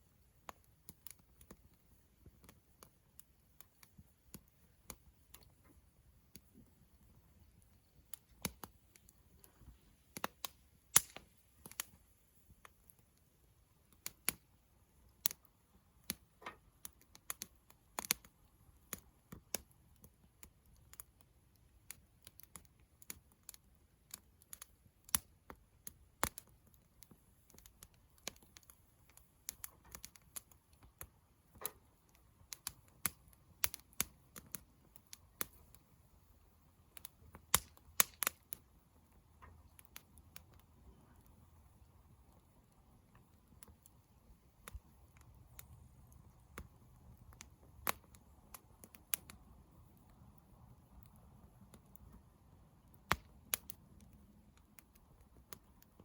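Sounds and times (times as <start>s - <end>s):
campfire crackling and popping: 0.0s - 56.0s
faint hiss of burning: 0.0s - 56.0s.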